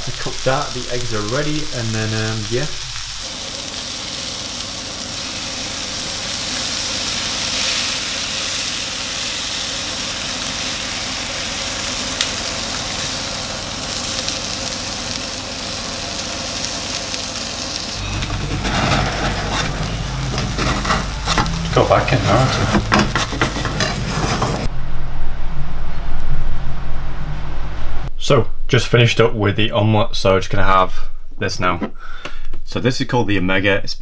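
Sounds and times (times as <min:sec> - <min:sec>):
vegetables and egg sizzling in pan: 0:00.0 - 0:24.7
low rumble: 0:18.0 - 0:28.7.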